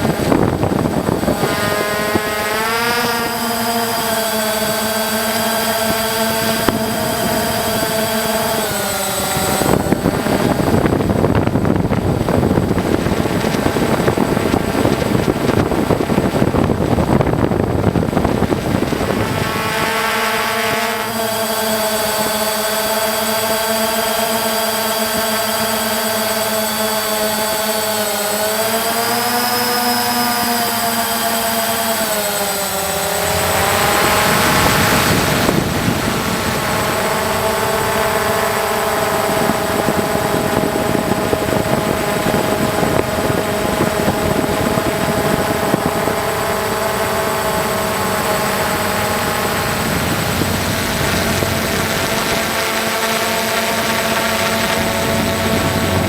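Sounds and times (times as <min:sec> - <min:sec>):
motor whining: 0:00.0 - 0:56.0
rushing noise: 0:32.6 - 0:37.0.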